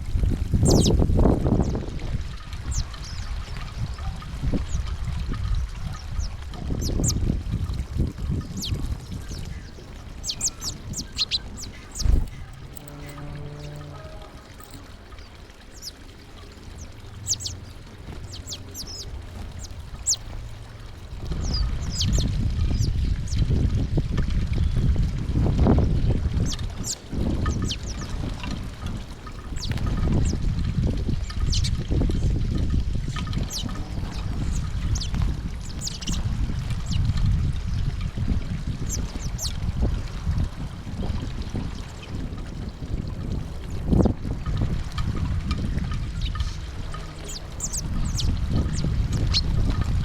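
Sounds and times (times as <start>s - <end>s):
low rumbling noise: 0.0s - 50.0s
small birds chirping: 0.5s - 1.0s, 2.6s - 23.4s, 26.3s - 37.2s, 38.8s - 39.6s, 46.0s - 50.0s.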